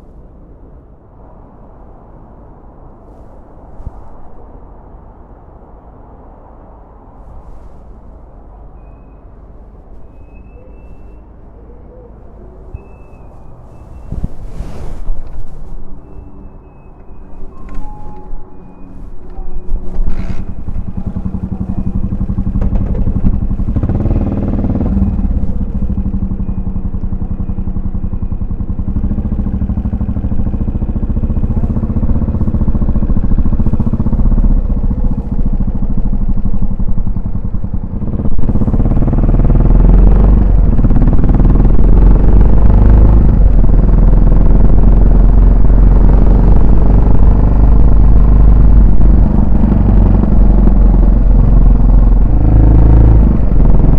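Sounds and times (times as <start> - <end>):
motorcycle engine running: 16.2 - 53.9.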